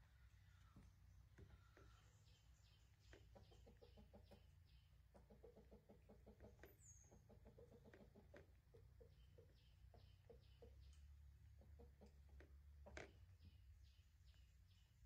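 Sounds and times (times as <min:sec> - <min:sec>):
faint bird calls: 0:00.0 - 0:08.0.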